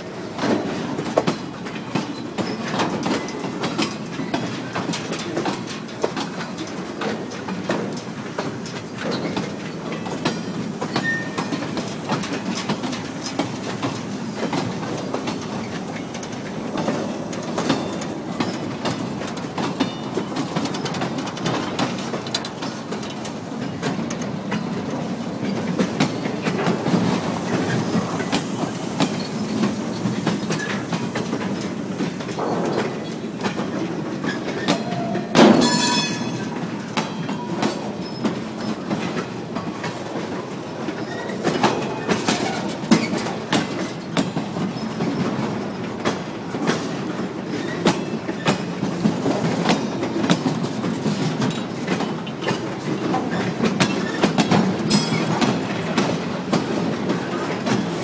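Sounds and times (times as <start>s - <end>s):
metallic clanks: 35.4s - 36.7s.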